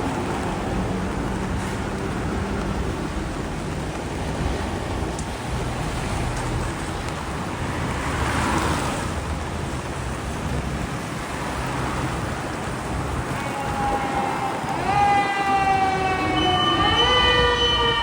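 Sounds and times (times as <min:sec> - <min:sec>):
engine hum: 0:00.0 - 0:18.0.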